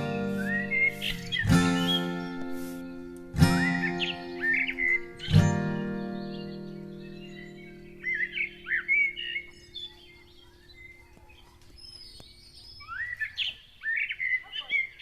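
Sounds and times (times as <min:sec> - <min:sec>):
held music chord: 0:00.0 - 0:10.5
birds chirping: 0:00.0 - 0:15.0.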